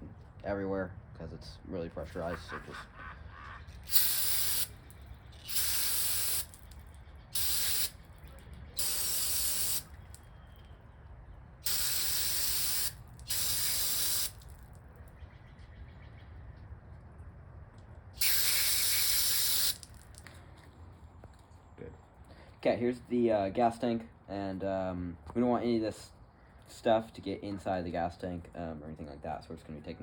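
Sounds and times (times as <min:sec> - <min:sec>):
aerosol spray hissing: 0:03.9 - 0:04.8, 0:05.4 - 0:06.6, 0:07.4 - 0:08.0, 0:08.8 - 0:09.9, 0:11.7 - 0:14.4, 0:18.2 - 0:19.9.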